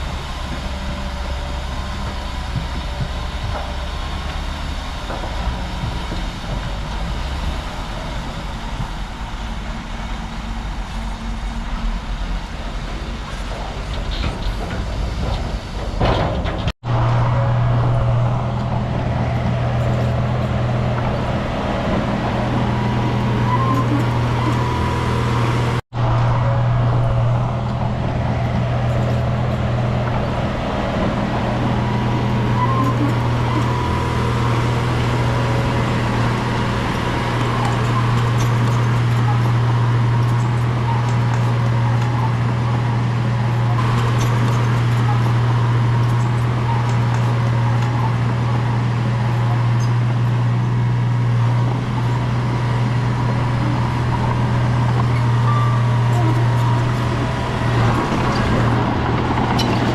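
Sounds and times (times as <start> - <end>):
heavy machinery diesel engine rumbling: 0.0 - 59.9.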